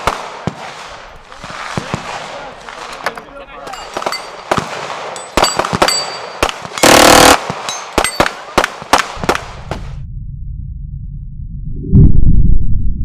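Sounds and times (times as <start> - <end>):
gunshots: 0.0 - 10.0
automatic gunfire burst: 4.0 - 9.5
low rumble: 9.4 - 13.0.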